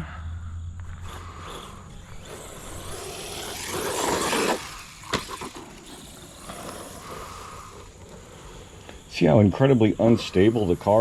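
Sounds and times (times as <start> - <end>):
rc truck running over dirt: 0.8 - 11.0.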